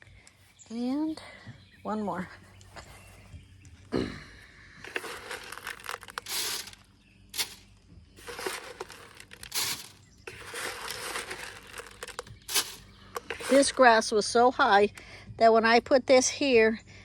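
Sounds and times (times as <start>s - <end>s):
bird seed scattering: 4.8s - 14.0s.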